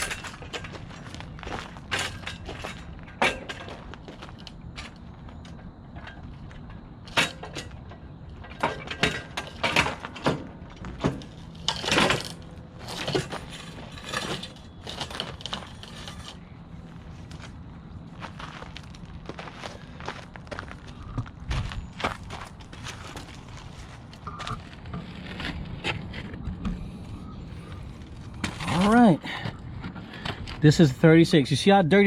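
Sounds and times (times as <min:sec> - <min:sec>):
mower clanks and knocks: 0:00.0 - 0:16.4
scraping rattle: 0:05.9 - 0:16.6.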